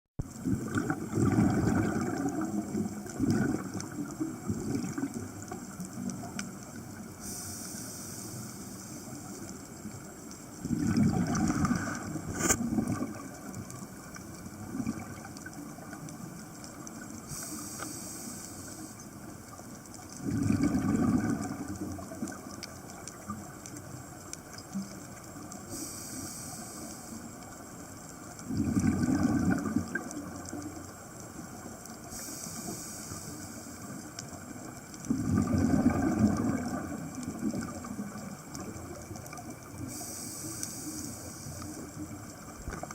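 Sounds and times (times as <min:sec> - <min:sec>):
bubbling exhaled air: 0:00.2 - 0:06.3, 0:10.6 - 0:13.8, 0:14.5 - 0:15.9, 0:20.2 - 0:22.5, 0:28.5 - 0:30.6, 0:35.0 - 0:42.9
underwater wash: 0:00.2 - 0:42.9
hissing regulator inhalation: 0:07.2 - 0:09.2, 0:17.2 - 0:19.1, 0:25.7 - 0:27.3, 0:32.1 - 0:34.0, 0:39.8 - 0:41.8.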